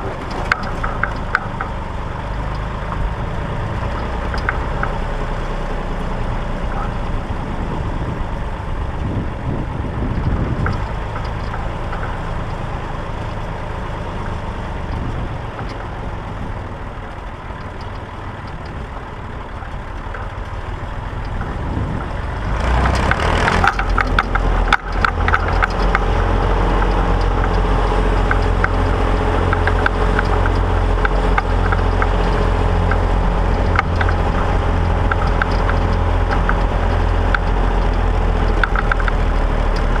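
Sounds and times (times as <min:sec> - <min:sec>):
tractor engine clattering: 0:00.0 - 0:40.0.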